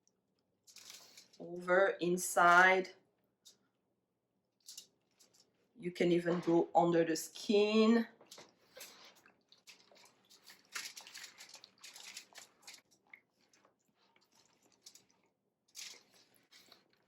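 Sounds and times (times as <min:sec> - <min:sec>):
hands squishing raw chicken: 0:08.2 - 0:17.0.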